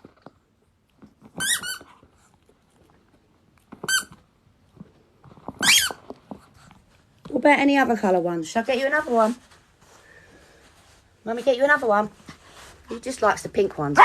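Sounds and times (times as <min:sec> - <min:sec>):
puppy whining: 0:05.4 - 0:06.2.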